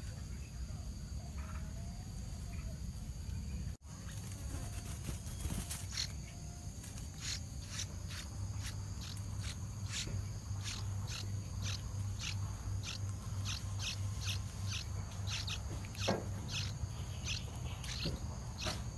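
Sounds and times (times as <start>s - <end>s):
high insect drone: 0.0s - 18.9s
bird harsh alarm notes: 5.3s - 18.9s.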